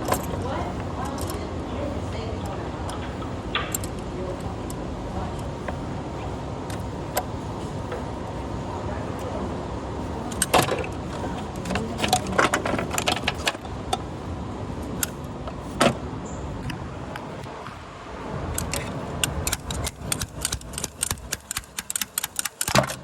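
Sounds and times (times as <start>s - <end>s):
rapid clicks: 18.5s - 23.0s.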